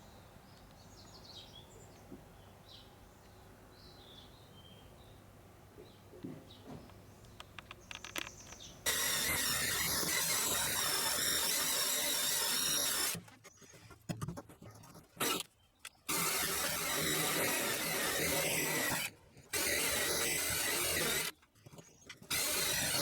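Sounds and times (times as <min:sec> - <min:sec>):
small clicks: 0:06.9 - 0:13.5
harsh metalworking tool noise: 0:07.9 - 0:13.3, 0:16.1 - 0:21.3, 0:22.2 - 0:23.0.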